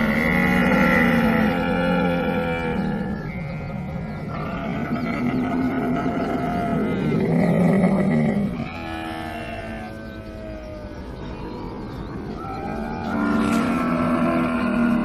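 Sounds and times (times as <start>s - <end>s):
camel groaning: 0.0s - 3.6s, 4.3s - 10.6s, 13.0s - 15.0s.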